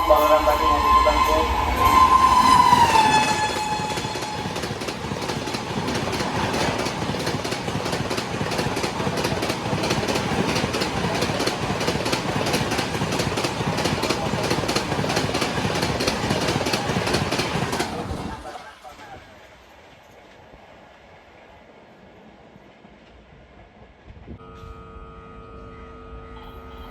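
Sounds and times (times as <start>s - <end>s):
train horn: 0.0s - 4.9s, 24.4s - 26.9s
train coaches rushing past: 0.0s - 24.0s.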